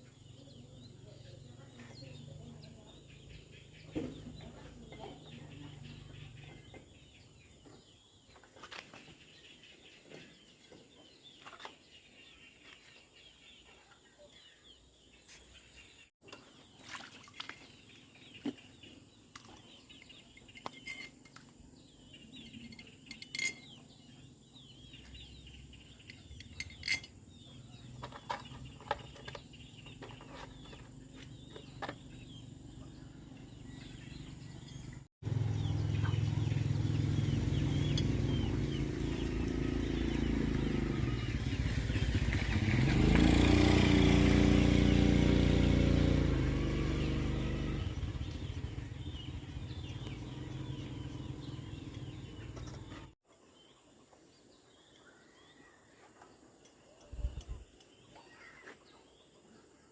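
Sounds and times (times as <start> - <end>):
birds chirping: 0.0 - 59.9
light clinks and knocks: 19.9 - 21.6, 22.4 - 24.0, 25.9 - 32.1.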